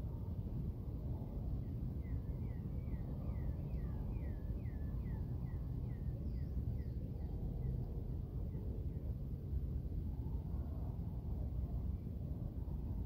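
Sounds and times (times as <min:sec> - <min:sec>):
steady low rumble: 0:06.1 - 0:13.0.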